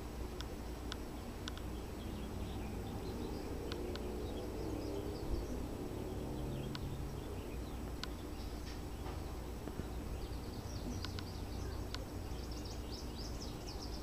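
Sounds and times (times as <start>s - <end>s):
low outdoor rumble: 0.0s - 14.0s
sharp clicks: 0.4s - 1.7s, 3.7s - 4.1s, 7.9s - 8.8s, 10.9s - 12.1s
faint bird chirps: 1.0s - 14.0s.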